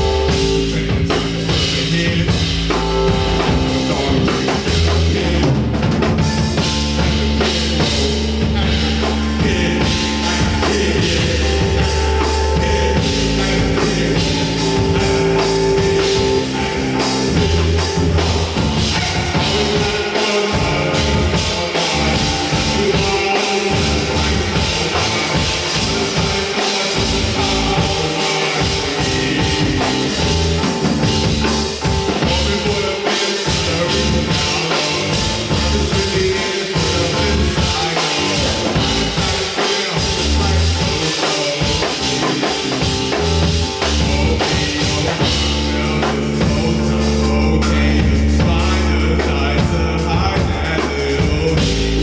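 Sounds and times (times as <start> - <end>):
sustained low bass note: 0.0 - 19.8, 45.2 - 50.6
live rock band playing: 0.0 - 52.0.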